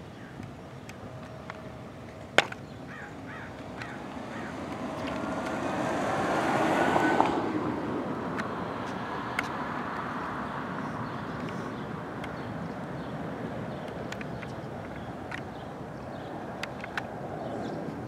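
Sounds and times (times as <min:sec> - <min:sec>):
crow cawing: 0:02.9 - 0:04.7
jet airliner passing: 0:03.6 - 0:08.4.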